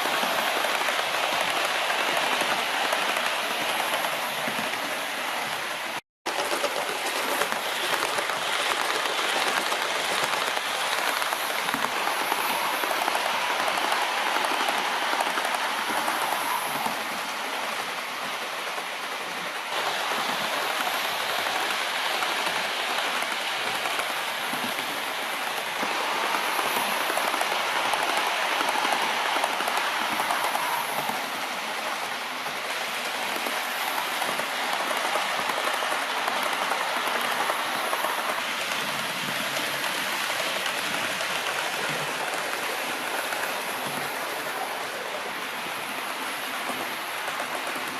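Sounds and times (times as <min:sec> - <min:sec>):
model train wheels rattling on rails: 0:00.0 - 0:47.9.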